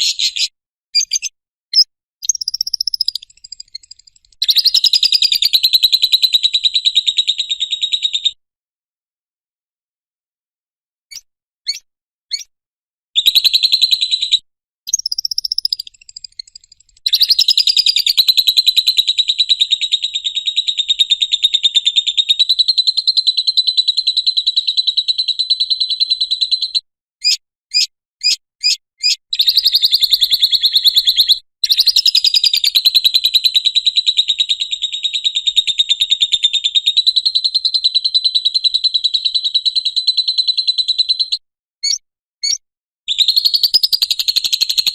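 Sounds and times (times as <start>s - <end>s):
lovebird chirps: 0.0s - 8.3s, 11.1s - 12.5s, 13.2s - 33.6s, 37.0s - 44.9s
lovebird chattering trills: 2.2s - 6.2s, 11.7s - 12.5s, 14.9s - 18.9s.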